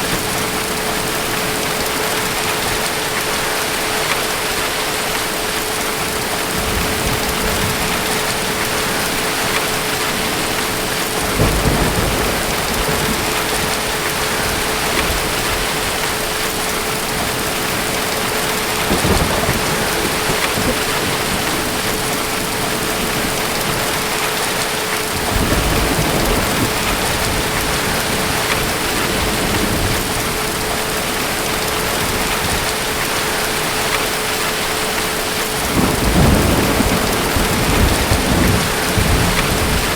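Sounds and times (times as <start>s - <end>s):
steady rain: 0.0s - 39.9s
distant thunder rumbles: 6.5s - 30.8s, 35.5s - 39.9s.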